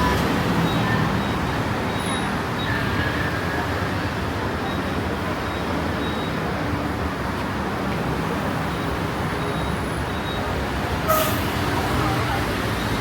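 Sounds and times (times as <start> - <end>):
city road traffic: 0.0 - 13.0.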